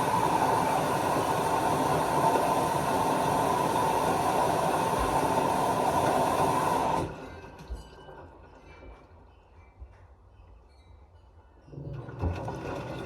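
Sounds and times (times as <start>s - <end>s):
washing machine rushing: 0.0s - 8.6s, 11.7s - 13.0s.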